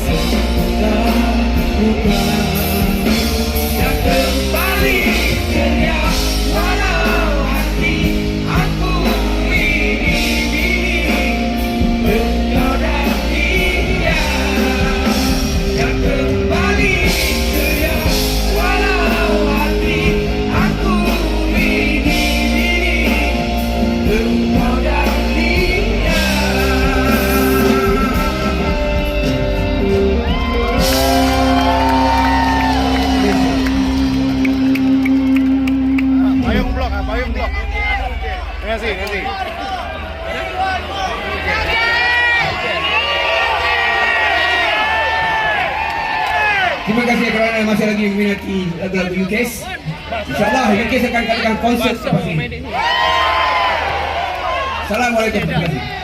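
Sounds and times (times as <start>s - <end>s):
man singing: 0.0s - 36.7s
live band playing: 0.0s - 56.0s.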